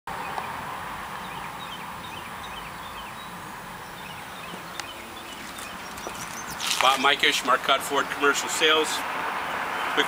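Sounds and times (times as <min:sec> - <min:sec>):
small birds chirping: 0:00.1 - 0:10.0.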